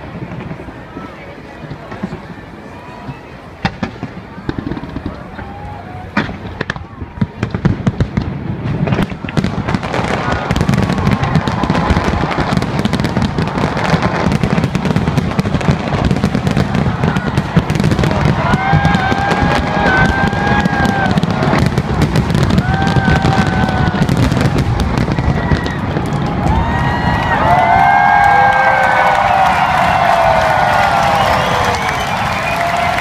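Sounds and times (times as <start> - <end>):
fireworks bursts and crackling: 0.0 - 33.0
fireworks whistles: 29.2 - 33.0.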